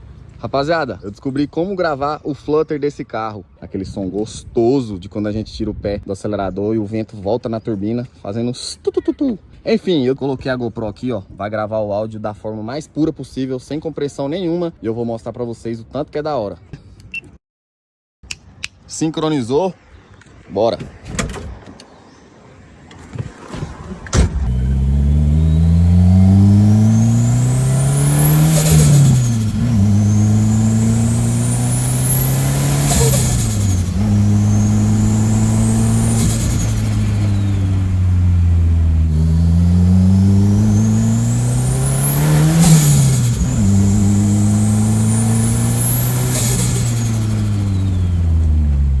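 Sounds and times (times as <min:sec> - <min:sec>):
car engine under throttle: 0:23.0 - 0:49.0
turbo whine: 0:24.2 - 0:48.9.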